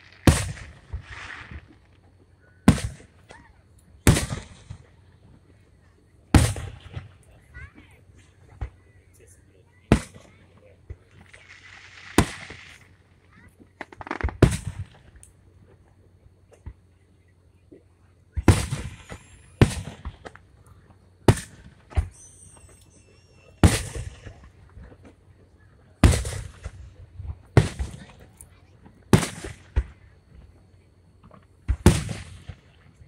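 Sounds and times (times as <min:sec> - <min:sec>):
firework shells bursting: 0:11.0 - 0:13.0, 0:13.8 - 0:15.3, 0:21.2 - 0:25.2.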